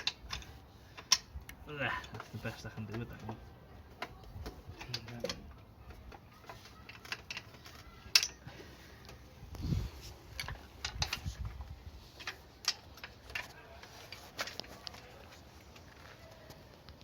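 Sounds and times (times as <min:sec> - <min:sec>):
hand tools tapping on metal: 0:00.0 - 0:09.3.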